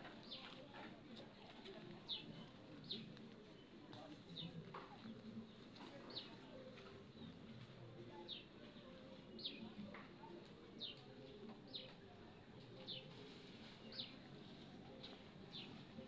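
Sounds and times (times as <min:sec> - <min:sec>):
faint low background murmur: 0:00.0 - 0:16.0.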